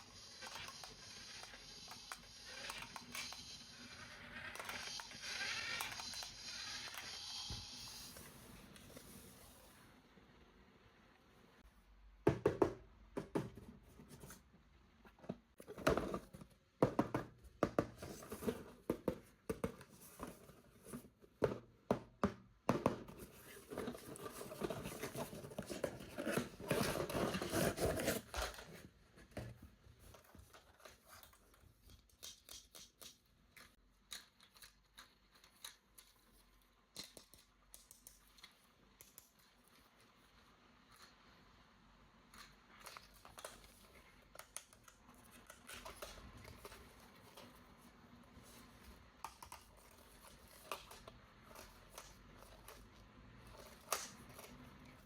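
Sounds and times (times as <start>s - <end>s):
packaging scraping and tearing: 23.3s - 28.9s.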